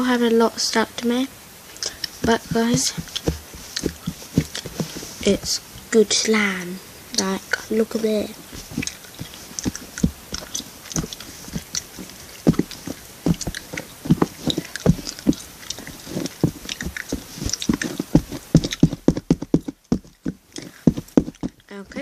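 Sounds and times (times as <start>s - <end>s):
slime squishing with wet pops: 8.5s - 22.0s.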